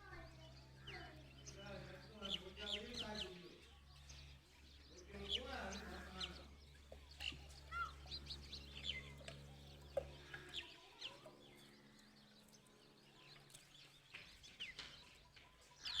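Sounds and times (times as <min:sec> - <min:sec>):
bird chirps: 0:00.0 - 0:16.0
low steady hum: 0:04.0 - 0:14.5.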